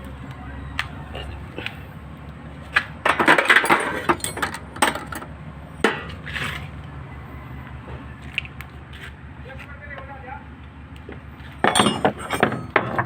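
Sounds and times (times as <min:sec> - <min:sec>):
metal tools clinking and knocking: 0:03.0 - 0:05.3, 0:11.6 - 0:13.0.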